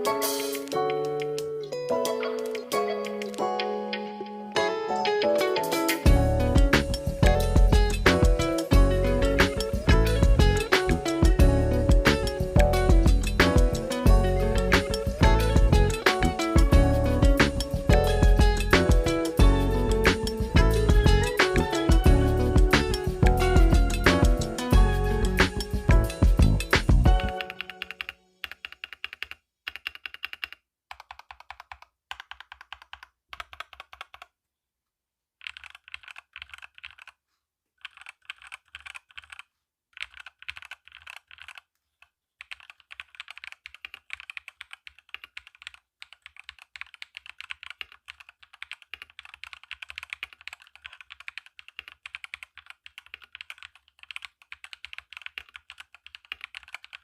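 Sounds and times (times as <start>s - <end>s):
mechanical keyboard typing: 0.0s - 3.7s, 26.7s - 34.3s, 35.4s - 37.2s, 37.8s - 57.0s.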